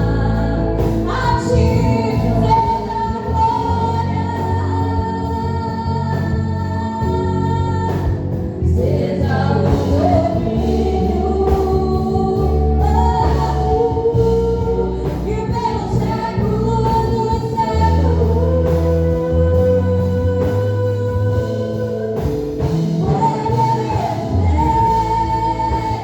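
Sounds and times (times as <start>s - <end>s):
live gospel music: 0.0s - 26.0s
person singing: 8.8s - 26.0s.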